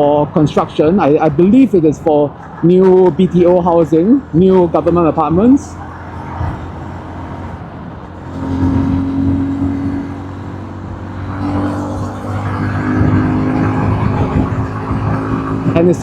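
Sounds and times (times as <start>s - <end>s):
road and wind noise: 0.0s - 16.0s
motorcycle engine running: 4.5s - 16.0s.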